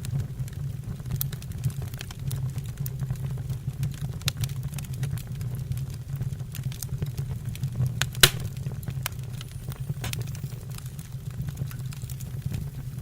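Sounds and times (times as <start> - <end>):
low rumble of fire: 0.0 - 13.0
wood fire crackling: 0.0 - 13.0.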